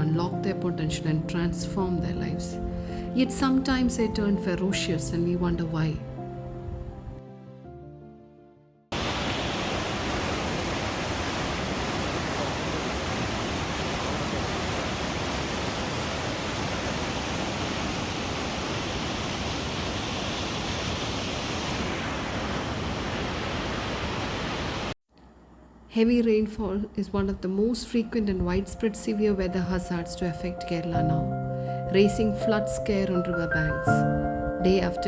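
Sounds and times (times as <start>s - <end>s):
water rushing: 8.9s - 25.0s.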